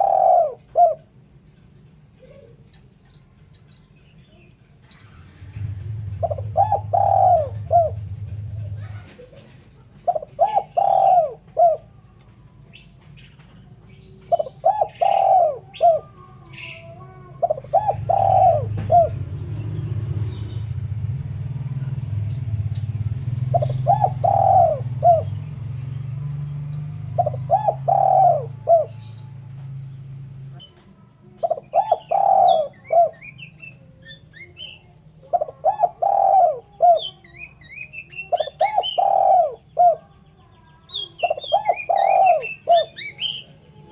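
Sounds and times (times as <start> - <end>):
dove cooing: 0.0 - 1.3, 5.0 - 43.9
small birds chirping: 0.0 - 43.9
low hum: 4.9 - 9.6.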